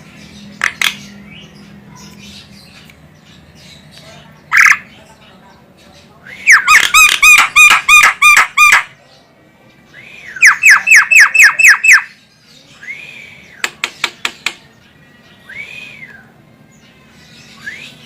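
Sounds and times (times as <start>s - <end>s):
bird calling harsh notes: 6.3s - 9.0s, 10.0s - 12.2s
bird sharp clicks: 13.6s - 14.6s.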